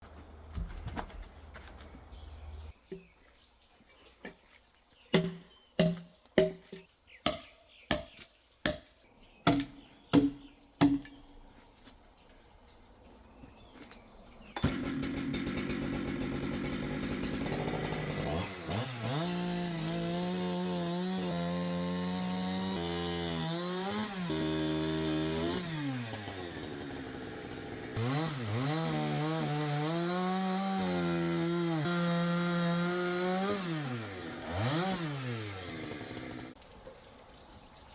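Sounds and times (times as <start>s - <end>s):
chainsaw cutting logs: 5.2s - 8.8s, 14.4s - 36.6s.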